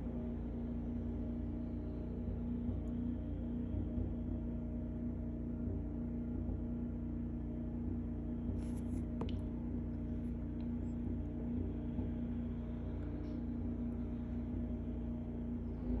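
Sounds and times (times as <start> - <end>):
snowblower engine running: 0.0 - 16.0.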